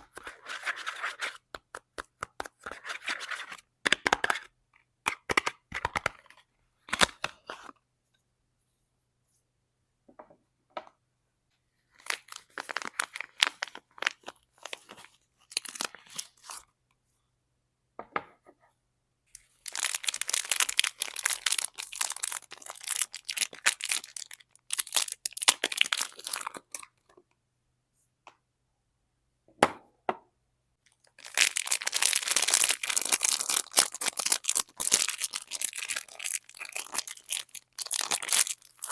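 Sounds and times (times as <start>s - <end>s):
packaging tearing and crinkling: 12.0s - 16.6s, 19.6s - 26.8s, 31.2s - 38.9s.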